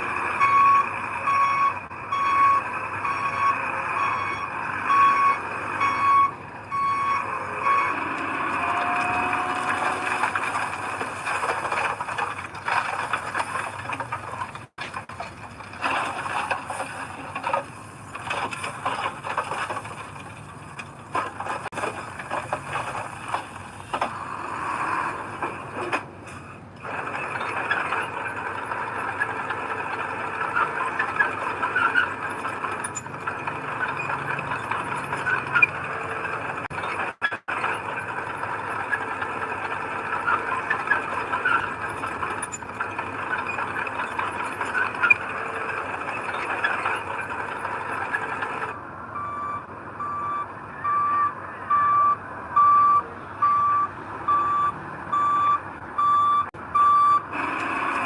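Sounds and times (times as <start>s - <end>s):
rattles and squeals: 0.0s - 48.8s
diesel machinery engine: 0.0s - 58.0s
reversing alarm beeping: 0.4s - 10.0s, 49.2s - 58.0s.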